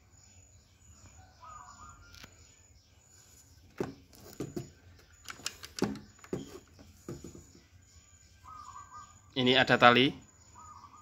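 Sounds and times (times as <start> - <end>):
short chirping call: 8.0 - 11.0
bird cawing: 8.4 - 9.2.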